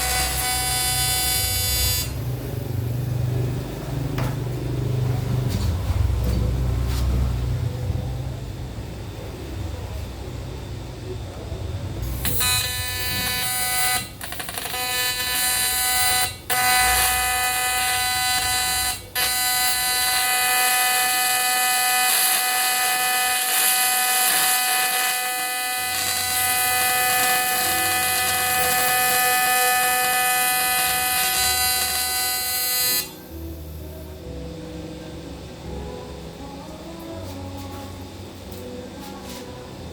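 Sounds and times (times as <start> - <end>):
welding arc buzzing: 0.0 - 5.1, 12.0 - 33.5.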